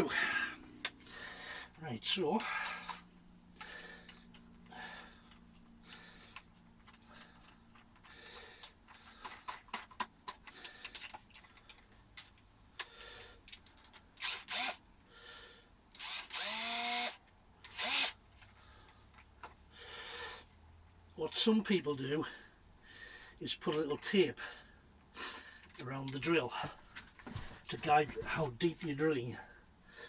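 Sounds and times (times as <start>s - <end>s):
power drill whining: 14.2s - 14.8s, 16.0s - 18.2s.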